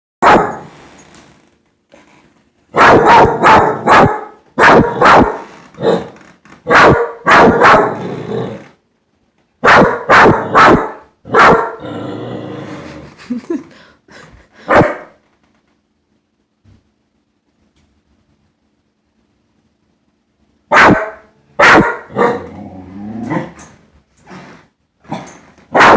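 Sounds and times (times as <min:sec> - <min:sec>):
dog barking loudly: 0:00.2 - 0:00.7, 0:02.7 - 0:08.0, 0:09.6 - 0:11.8, 0:14.7 - 0:15.2, 0:20.7 - 0:22.5.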